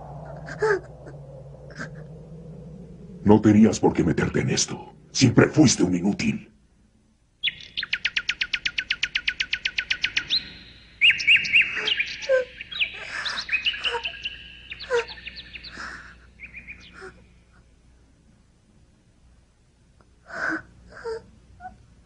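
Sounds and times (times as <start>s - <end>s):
bird trilling and chirping: 7.4s - 17.3s.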